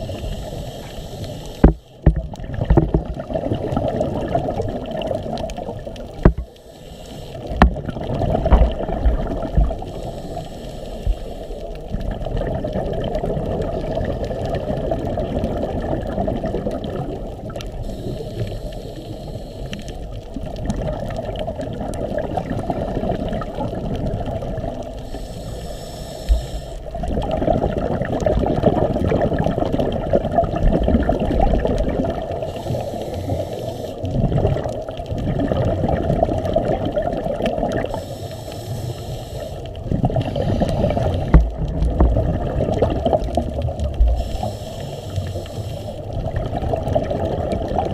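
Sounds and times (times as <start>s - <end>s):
muffled water sloshing: 1.5s - 17.8s, 39.7s - 47.9s.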